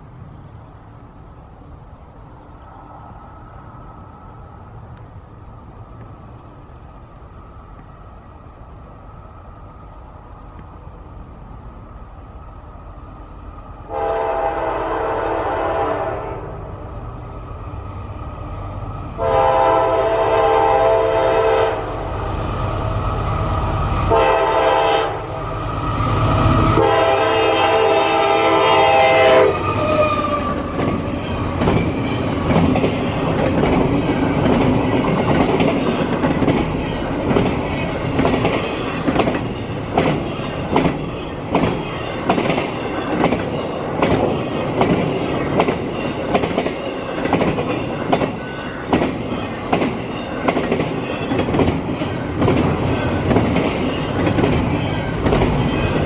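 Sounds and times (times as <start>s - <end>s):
train horn blasts: 13.9s - 16.7s, 19.2s - 22.1s, 24.1s - 25.6s, 26.6s - 30.6s
train wheels clacking over rail joints: 29.6s - 56.0s.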